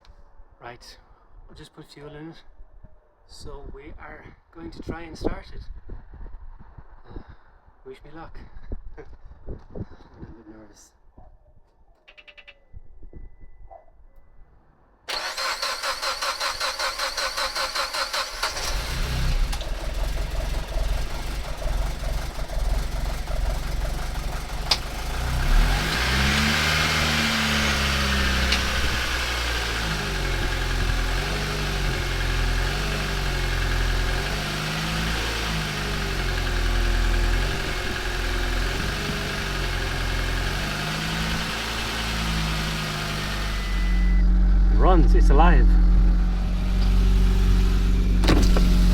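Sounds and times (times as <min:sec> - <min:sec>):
engine cranking on starter: 0:15.1 - 0:48.9
engine running and revving: 0:15.1 - 0:48.9.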